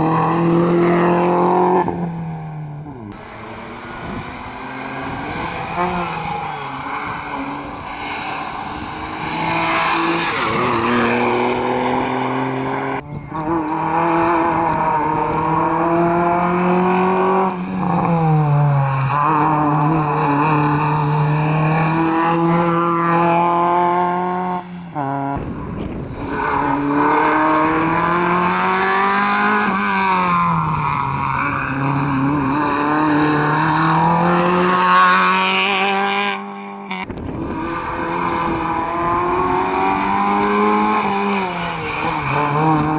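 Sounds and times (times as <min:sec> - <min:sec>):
rally car engines revving: 0:00.0 - 0:42.9
tyre squeal: 0:03.2 - 0:12.8.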